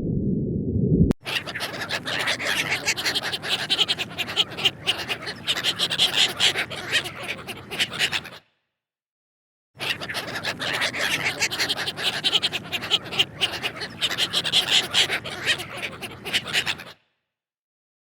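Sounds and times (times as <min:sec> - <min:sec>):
animal calls chattering: 0:01.2 - 0:08.4, 0:09.8 - 0:17.0.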